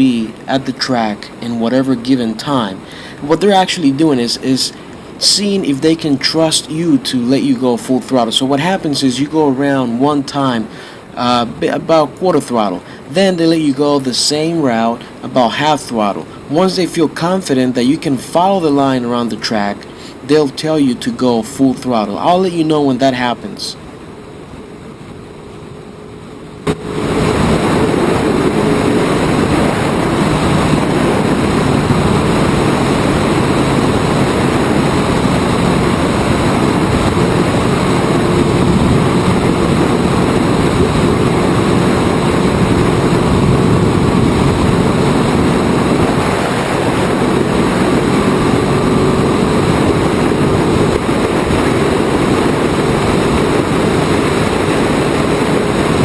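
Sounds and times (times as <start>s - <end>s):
wind and road noise: 0.0s - 56.0s
race car engine running: 26.6s - 56.0s.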